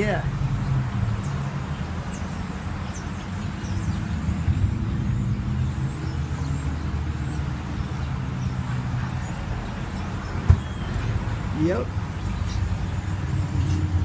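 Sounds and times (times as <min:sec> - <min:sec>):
bird chirps: 0:00.4 - 0:11.2.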